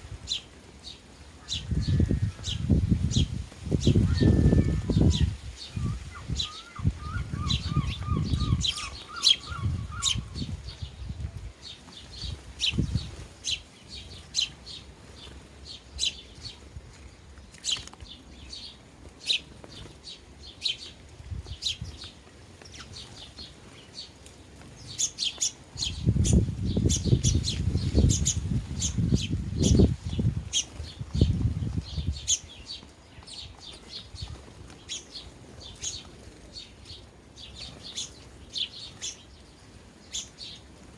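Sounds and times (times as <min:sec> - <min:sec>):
sparrows chirping: 0:00.0 - 0:40.9
bird warbling trill: 0:03.8 - 0:10.5.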